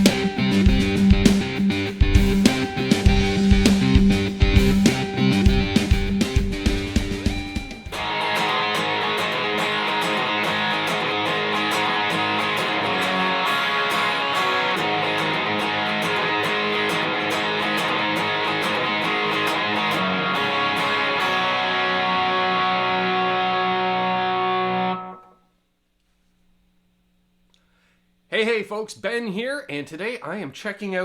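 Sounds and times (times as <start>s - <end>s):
electric guitar music: 0.0s - 25.4s.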